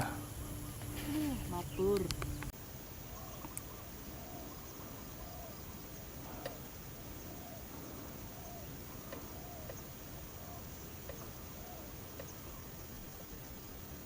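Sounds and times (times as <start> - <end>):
dove cooing: 0.0 - 2.5, 3.1 - 13.3
steady outdoor hiss: 0.0 - 14.0.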